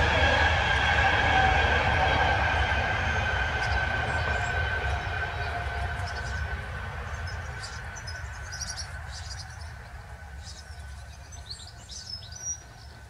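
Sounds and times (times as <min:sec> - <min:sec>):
small birds chirping: 0:03.6 - 0:13.0.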